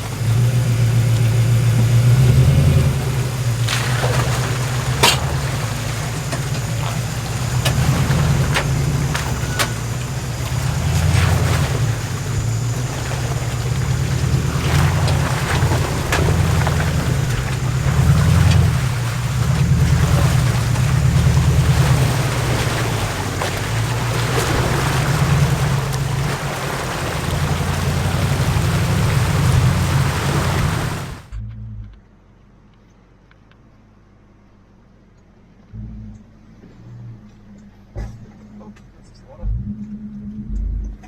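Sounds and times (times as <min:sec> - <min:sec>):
water sloshing: 0:00.0 - 0:31.3
engine labouring at low revs: 0:00.0 - 0:32.2, 0:35.6 - 0:41.0.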